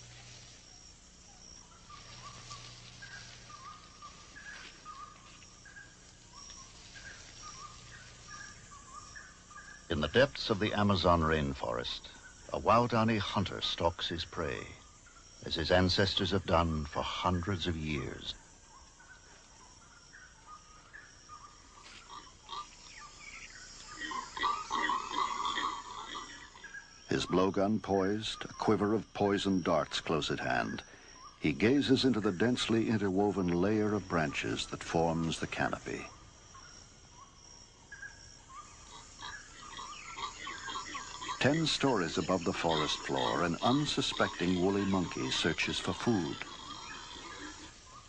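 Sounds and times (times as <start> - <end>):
soft hiss: 0.0 - 24.4
chirping and whistling animal calls: 0.0 - 48.0
high thin insect tone: 0.0 - 48.0.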